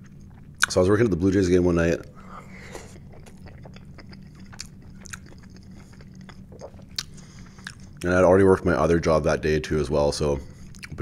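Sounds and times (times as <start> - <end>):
close-miked chewing: 2.0 - 8.1, 10.6 - 11.0.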